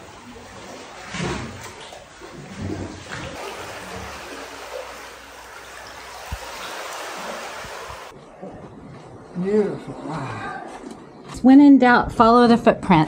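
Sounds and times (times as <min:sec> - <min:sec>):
seawater washing among boulders: 0:00.0 - 0:08.2.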